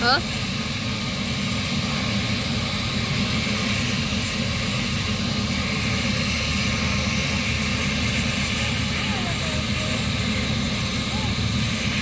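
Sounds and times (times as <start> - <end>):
helicopter rotor and engine: 0.0 - 12.0.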